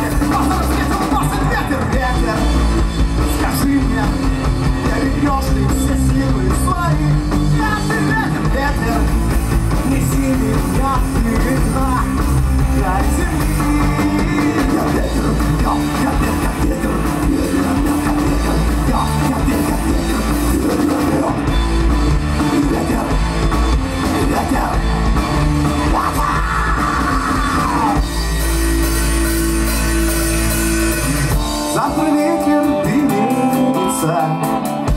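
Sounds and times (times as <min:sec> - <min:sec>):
rock band playing: 0:00.0 - 0:34.9
person singing: 0:03.3 - 0:21.5, 0:25.8 - 0:28.4, 0:31.5 - 0:34.9.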